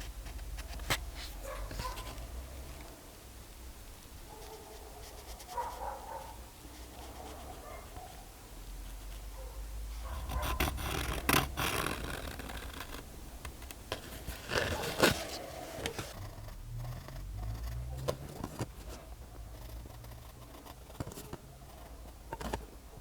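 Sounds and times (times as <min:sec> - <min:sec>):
scraping and handling noises: 0:00.0 - 0:02.9, 0:08.8 - 0:16.5, 0:17.2 - 0:23.0.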